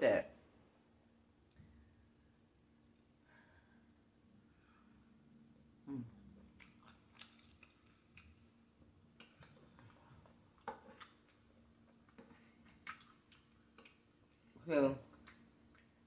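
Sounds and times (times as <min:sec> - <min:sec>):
low steady hum: 0:00.0 - 0:16.0
person chewing: 0:06.4 - 0:08.5, 0:09.1 - 0:16.0.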